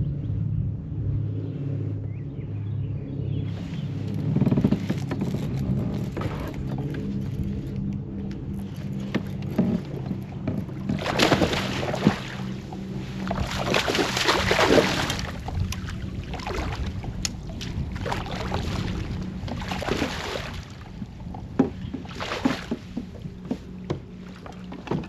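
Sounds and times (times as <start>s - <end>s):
steady low hum: 0.0s - 25.0s
water splashing against kayak: 8.6s - 25.0s.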